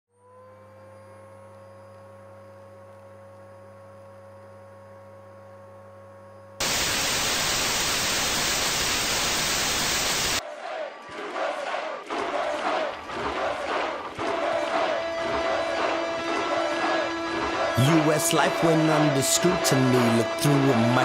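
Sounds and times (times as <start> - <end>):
faint held tone: 0.2 - 6.6
low electrical hum: 0.2 - 6.6
loud white-noise static: 6.6 - 10.4.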